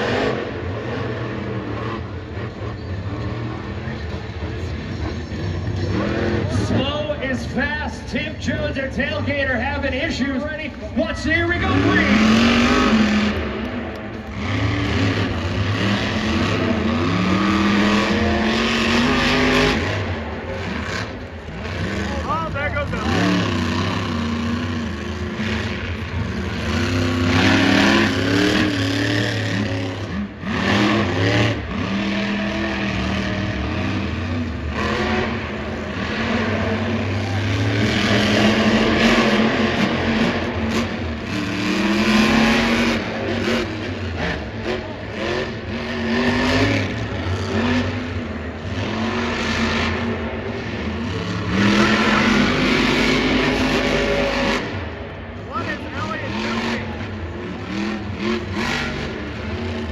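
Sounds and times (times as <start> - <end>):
monster truck engines revving: 0.0 - 59.9.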